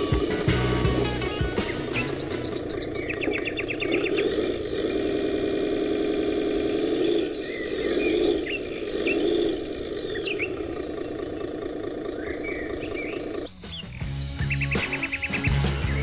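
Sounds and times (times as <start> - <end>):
birds chirping: 0.0 - 16.0
toy truck motor drone: 3.0 - 13.5.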